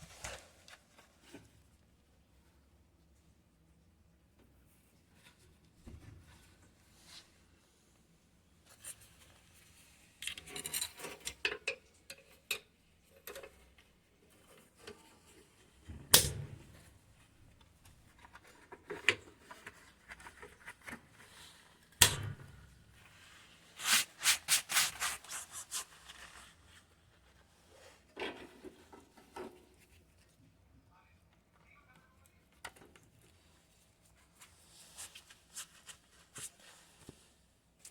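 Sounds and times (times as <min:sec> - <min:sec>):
hands rubbing and scraping parts: 0:22.6 - 0:30.4.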